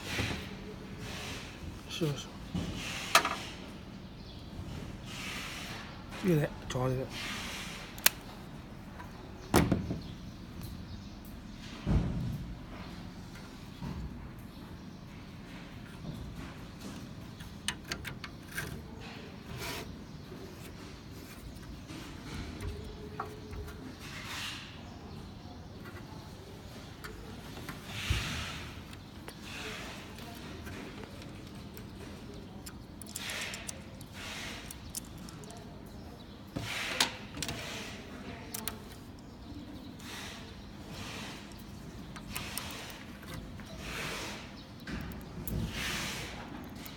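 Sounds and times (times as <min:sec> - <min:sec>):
small clicks of machine parts: 0:31.0 - 0:35.7.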